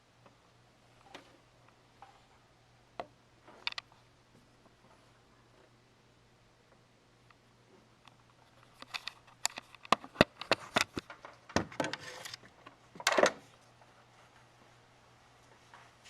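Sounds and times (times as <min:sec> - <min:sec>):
sharp clicks and knocks: 0:08.1 - 0:13.4.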